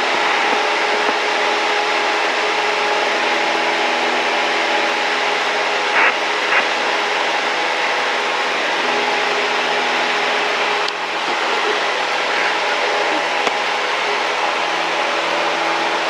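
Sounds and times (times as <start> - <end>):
airplane engine and propeller droning: 0.0 - 16.0.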